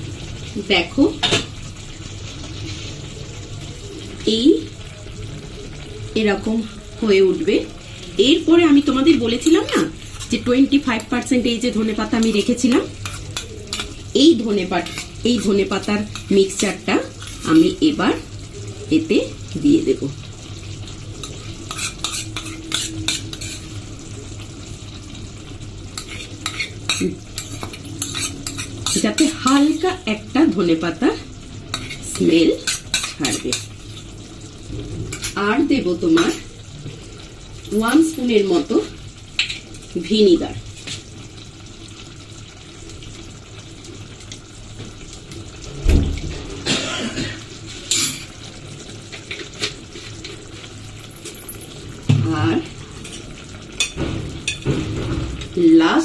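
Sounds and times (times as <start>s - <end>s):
food sizzling in a pan: 0.0s - 56.0s
spoon scraping a pan: 9.0s - 18.0s, 21.2s - 23.9s, 25.9s - 30.0s, 31.7s - 34.3s, 35.1s - 35.4s, 47.6s - 55.5s.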